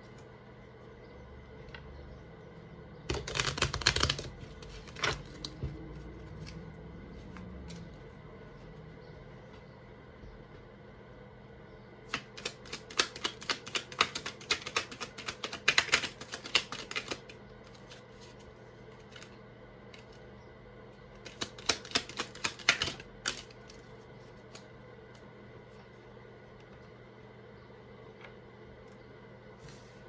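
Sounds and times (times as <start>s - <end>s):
cards being shuffled: 3.1s - 8.1s.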